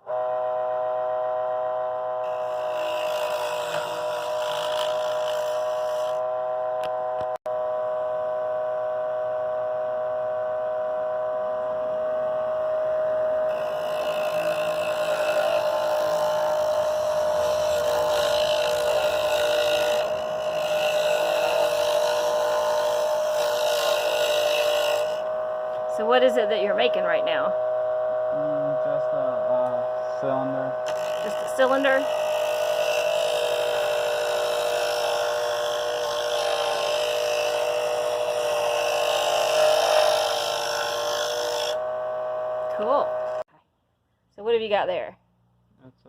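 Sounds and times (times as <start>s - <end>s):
lathe motor hum: 0.0s - 43.5s
chisel scraping spinning wood: 2.2s - 7.3s, 13.5s - 27.0s, 30.2s - 41.8s.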